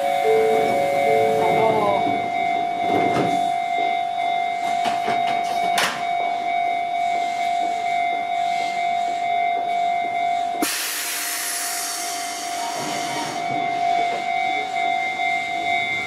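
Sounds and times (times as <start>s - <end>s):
train doors shutting clunk: 0.0s - 3.6s, 4.7s - 6.1s
electric train high electrical tone: 0.0s - 16.0s.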